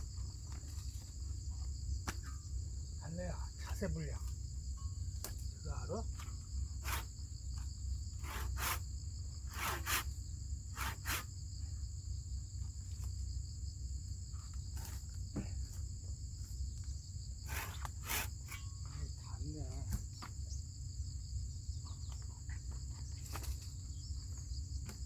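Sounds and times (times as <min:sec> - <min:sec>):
insects chirring: 0:00.0 - 0:25.0.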